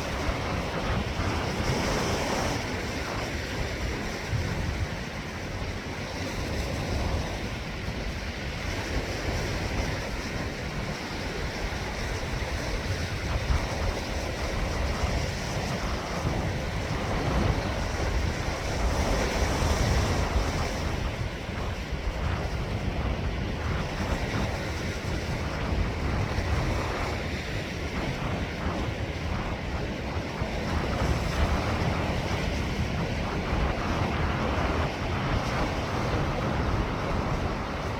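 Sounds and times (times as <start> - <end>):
sea waves washing ashore: 0.0 - 37.9
wind buffeting microphone: 0.0 - 37.9.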